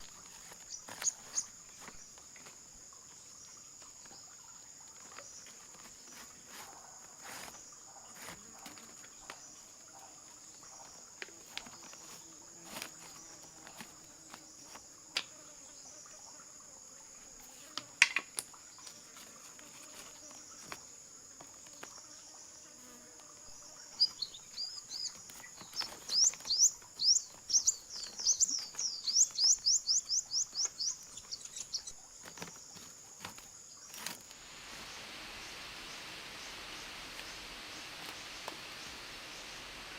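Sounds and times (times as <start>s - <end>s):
insects chirring: 0.0s - 39.9s
bird chirping rapidly: 23.9s - 32.0s.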